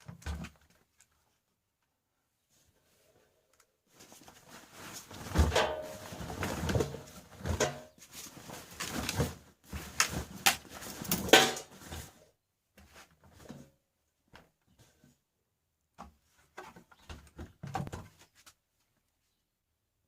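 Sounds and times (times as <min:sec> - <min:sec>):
washing machine being handled: 0:04.7 - 0:12.1.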